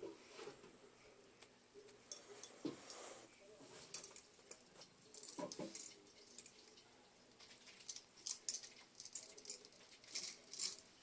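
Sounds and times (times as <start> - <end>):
light clicks and rattles: 3.8 - 11.0.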